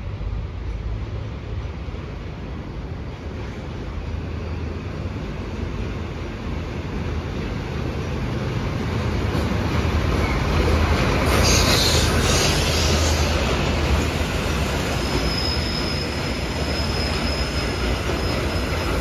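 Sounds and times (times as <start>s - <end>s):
wheel squeal and hiss on rails: 10.0s - 19.0s.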